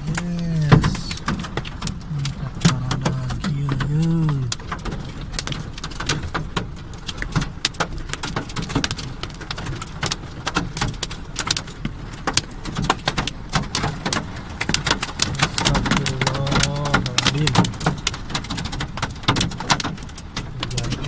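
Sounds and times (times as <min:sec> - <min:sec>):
low rumble: 0:00.0 - 0:05.8
hailstones striking hard surfaces: 0:00.0 - 0:21.0.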